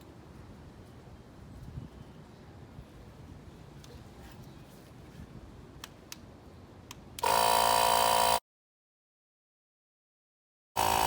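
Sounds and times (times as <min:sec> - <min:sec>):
small motor buzzing: 0:07.2 - 0:08.4, 0:10.8 - 0:11.0.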